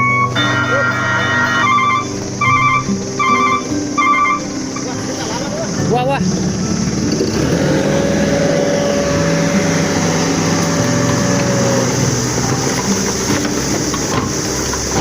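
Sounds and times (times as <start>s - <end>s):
held tone: 0.0s - 4.8s
motor engine running: 1.1s - 15.0s.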